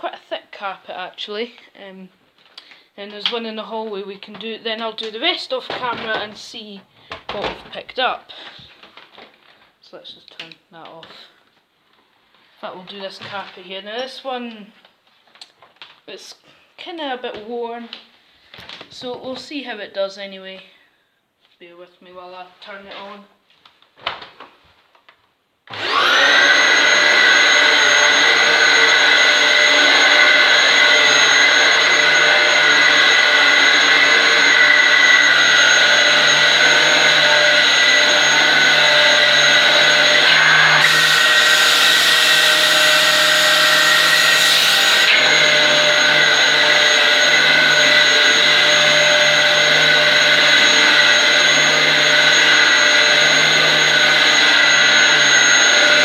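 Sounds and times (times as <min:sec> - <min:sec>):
vacuum cleaner motor whine: 0:25.7 - 0:56.0.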